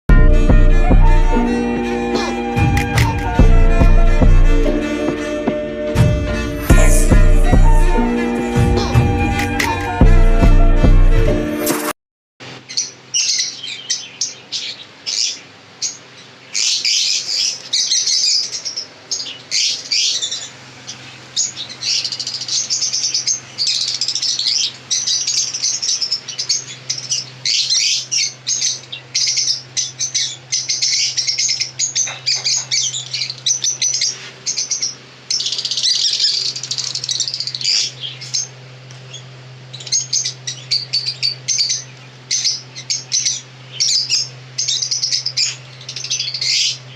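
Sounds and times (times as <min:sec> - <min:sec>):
steady low hum: 0:00.1 - 0:11.5
flock of small birds chirping: 0:01.4 - 0:03.4, 0:12.6 - 0:46.9.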